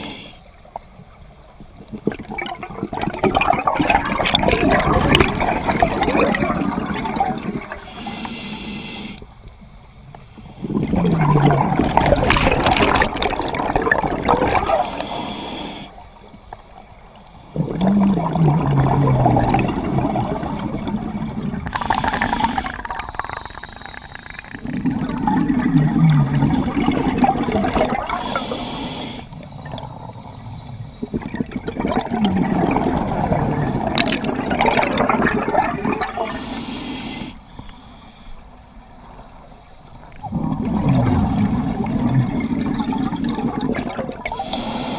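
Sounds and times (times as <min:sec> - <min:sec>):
diver breathing through regulator: 0:00.0 - 0:00.5, 0:07.6 - 0:09.4, 0:14.7 - 0:16.3, 0:21.5 - 0:24.8, 0:27.9 - 0:29.8, 0:36.0 - 0:38.7, 0:44.3 - 0:44.9
bubbling exhaust: 0:17.6 - 0:28.4, 0:40.2 - 0:44.8.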